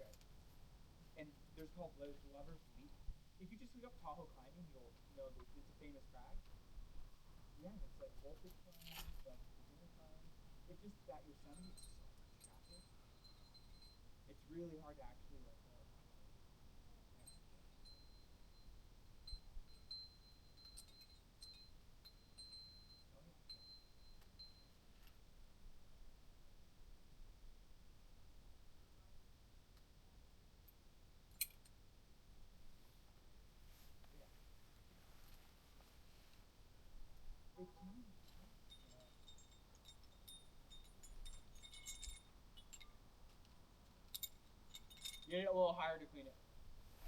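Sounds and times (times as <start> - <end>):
climbing hardware clinking: 8.2 - 9.4, 38.1 - 45.5
faint high-pitched tone: 17.0 - 24.9, 37.5 - 39.2.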